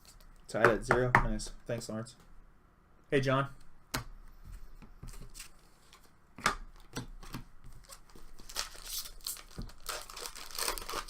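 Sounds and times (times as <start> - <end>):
wrapper crinkling: 7.8 - 11.0.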